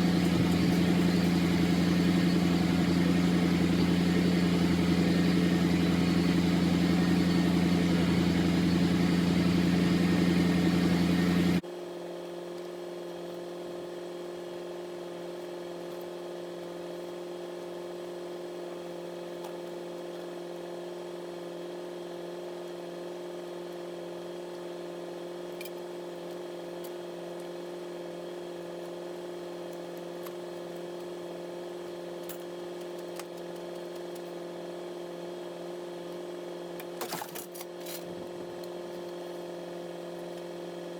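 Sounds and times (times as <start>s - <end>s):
vehicle engine idling: 0.0s - 11.6s.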